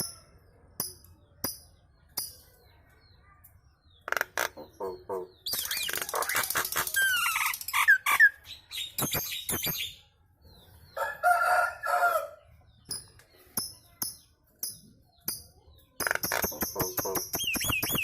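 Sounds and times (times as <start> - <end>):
bird sharp calls and clicks: 0.0 - 10.2, 12.7 - 18.0
short high bird chirps: 4.6 - 10.1, 15.9 - 18.0.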